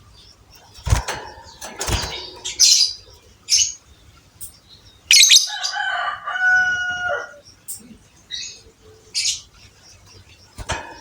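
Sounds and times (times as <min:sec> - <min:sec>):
bird shrill chirps: 0:05.1 - 0:07.4.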